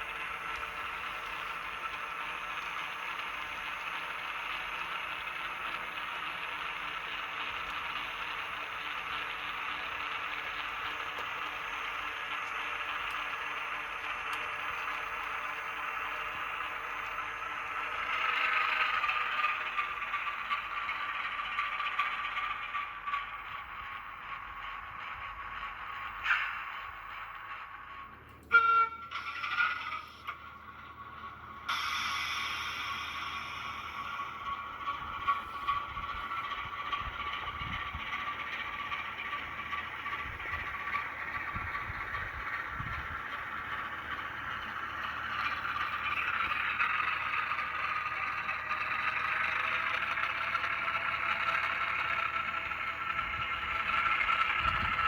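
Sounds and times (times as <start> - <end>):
model train wheels clattering: 0.0 - 55.0
whine: 0.0 - 55.0
high-pitched engine hum from speaker: 28.2 - 55.0.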